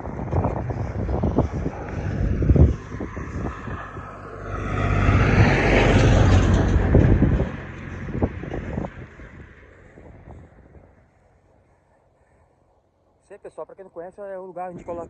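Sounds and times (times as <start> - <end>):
wind buffeting microphone: 0.0 - 11.3
motor vehicle passing: 0.0 - 13.0.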